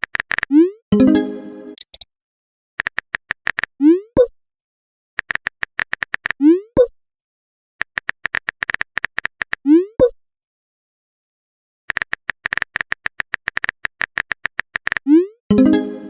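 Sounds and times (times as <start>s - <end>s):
smartphone keyboard typing clicks: 0.0s - 0.5s, 1.8s - 2.0s, 2.8s - 3.7s, 5.2s - 6.4s, 7.8s - 9.6s, 11.9s - 15.1s.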